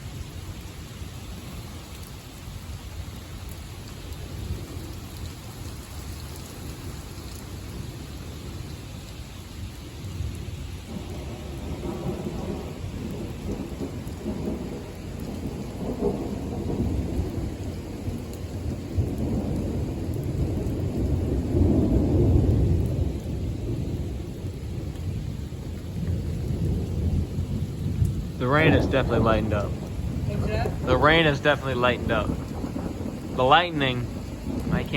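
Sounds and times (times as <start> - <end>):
light rain: 0.0 - 34.9
rolling thunder: 10.2 - 34.9.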